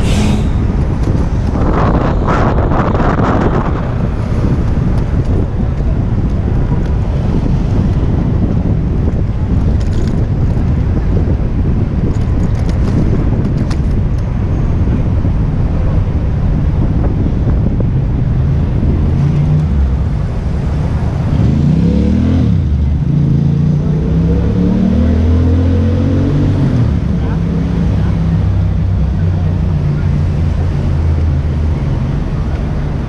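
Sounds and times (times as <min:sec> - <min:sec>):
city traffic: 0:00.0 - 0:33.0
wind rushing over microphone: 0:00.0 - 0:33.0.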